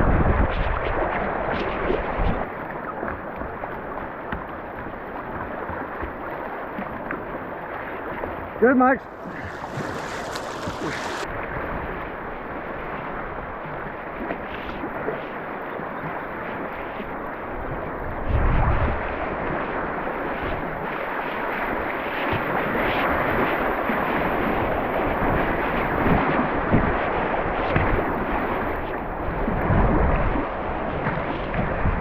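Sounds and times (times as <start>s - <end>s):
river current rushing: 9.0s - 11.3s
wind buffeting microphone: 9.0s - 11.3s.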